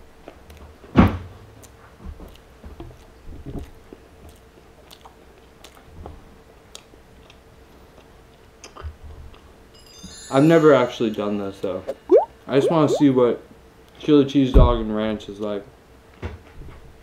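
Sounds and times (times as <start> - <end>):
man chewing: 4.2 - 5.9.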